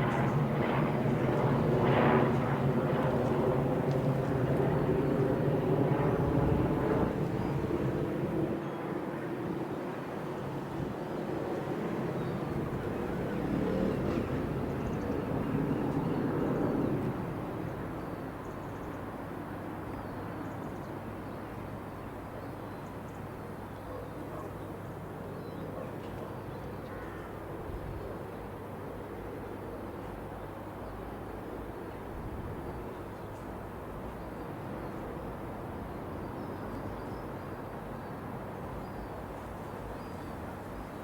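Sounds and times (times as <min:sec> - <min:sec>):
helicopter in flight: 0:00.0 - 0:19.5.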